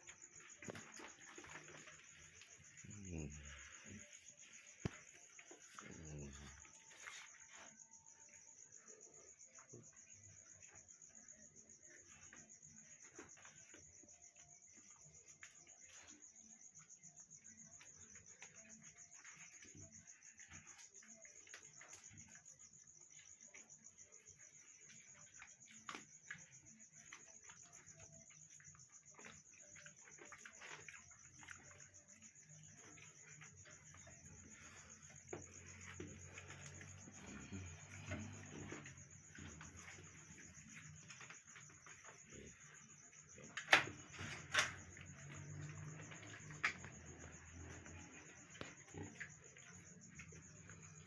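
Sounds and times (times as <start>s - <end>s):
insect chirring: 0.0s - 51.0s.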